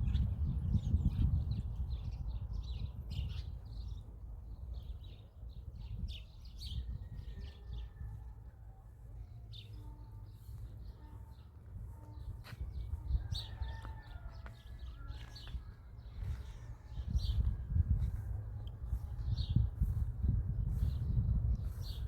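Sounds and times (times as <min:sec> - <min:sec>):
steady low rumble: 0:14.7 - 0:22.0.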